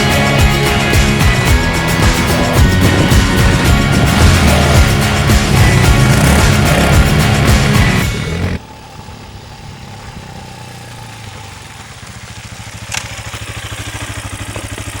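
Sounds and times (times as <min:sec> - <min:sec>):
music: 0:00.0 - 0:08.6
motorcycle engine idling: 0:00.0 - 0:15.0.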